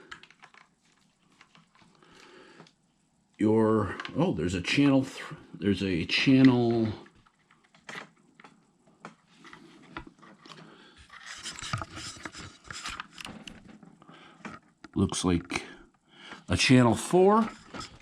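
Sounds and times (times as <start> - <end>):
plastic parts clicking and tapping: 0.0 - 2.0, 6.3 - 15.0.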